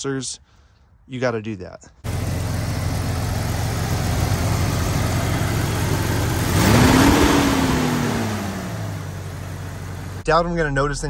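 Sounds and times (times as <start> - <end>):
engine idling and revving: 2.0 - 10.2.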